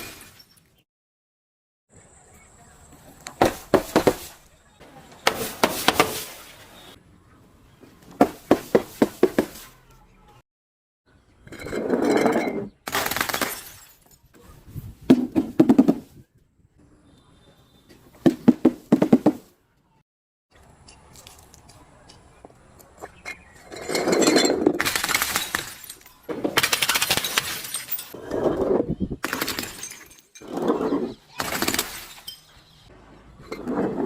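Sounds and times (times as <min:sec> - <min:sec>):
glass bottles breaking and crunching: 0:12.2 - 0:14.3, 0:23.7 - 0:28.2, 0:29.2 - 0:30.6, 0:31.4 - 0:32.6.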